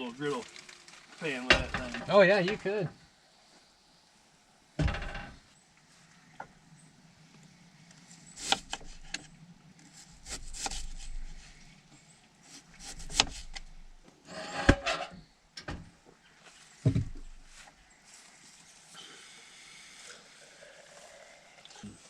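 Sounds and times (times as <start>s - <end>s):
rustling or scraping: 0.0s - 2.8s, 7.8s - 15.3s
handling knocks and clicks: 16.9s - 17.6s.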